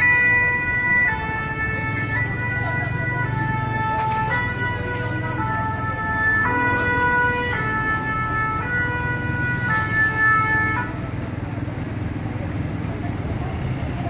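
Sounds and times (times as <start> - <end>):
two-tone siren: 0.0 - 11.2.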